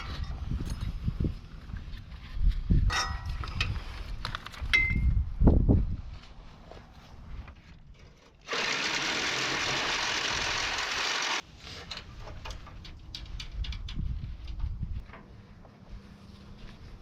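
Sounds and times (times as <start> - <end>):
power tool running: 8.5 - 11.4.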